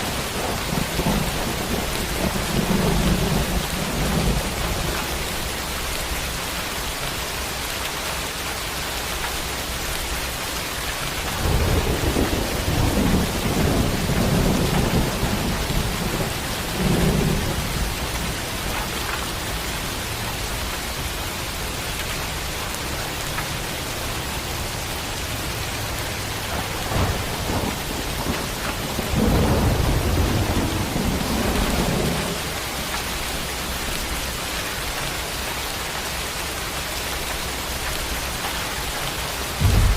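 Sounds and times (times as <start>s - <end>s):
thunder rumbling: 0.0s - 6.2s, 11.0s - 21.1s, 25.4s - 34.0s, 39.5s - 39.9s
steady rain hissing: 0.0s - 39.9s.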